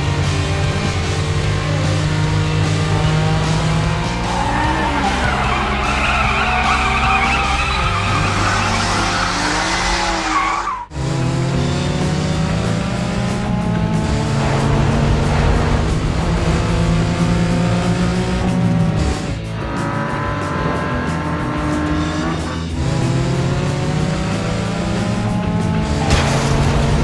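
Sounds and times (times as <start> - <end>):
race car engines: 0.0 - 27.0
tyres squealing: 4.3 - 10.8.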